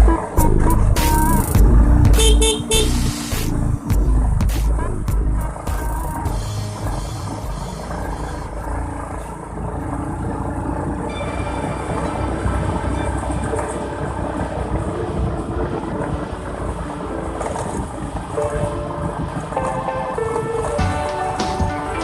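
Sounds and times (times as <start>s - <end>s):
motorcycle engine: 0.0s - 22.0s.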